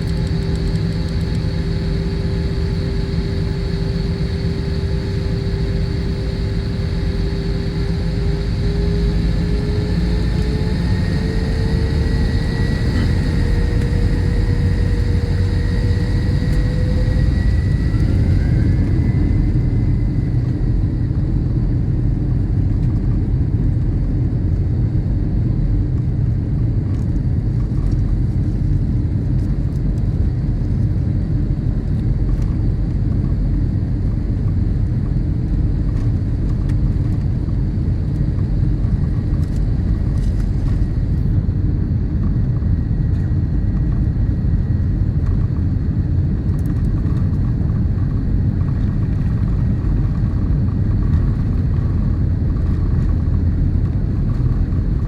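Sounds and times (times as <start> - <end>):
faint high whine: 0.0 - 22.2
vehicle engine rumbling: 0.0 - 24.3, 34.0 - 55.0.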